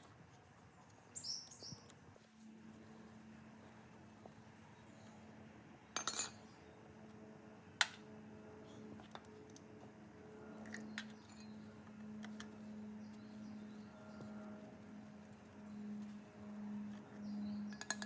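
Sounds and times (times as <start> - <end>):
steady low hum: 0.0 - 18.0
metal tools clinking: 6.0 - 6.4.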